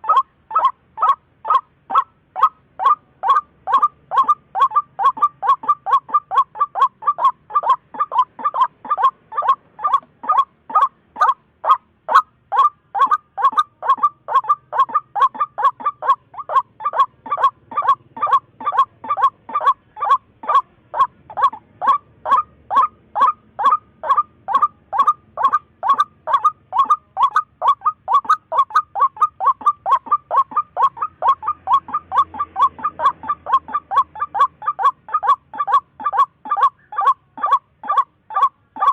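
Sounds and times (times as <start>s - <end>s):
waterhen calling: 0.0s - 38.9s.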